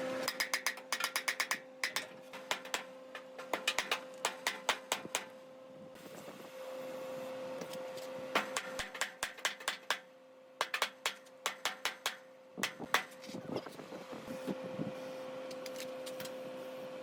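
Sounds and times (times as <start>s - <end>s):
sharp clicks and knocks: 0.3s - 5.3s, 8.4s - 10.0s, 10.6s - 13.2s.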